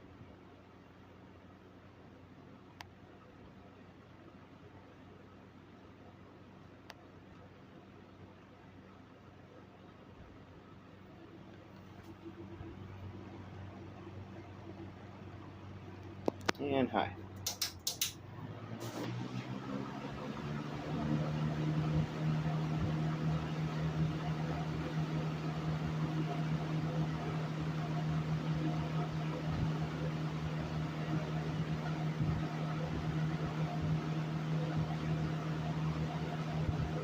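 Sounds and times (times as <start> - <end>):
fan motor hum: 5.6 - 37.0
rush of air from fan blades: 18.2 - 24.1.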